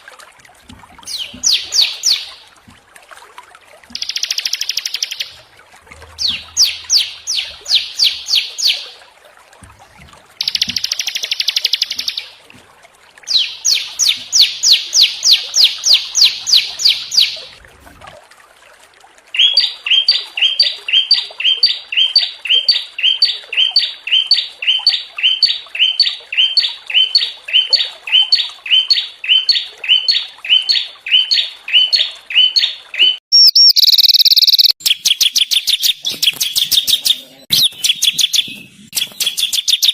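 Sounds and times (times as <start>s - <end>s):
songbird trills: 1.1s - 2.4s, 4.0s - 5.4s, 6.2s - 9.0s, 13.3s - 17.4s, 19.4s - 39.9s
repeated high chirps: 33.0s - 39.9s.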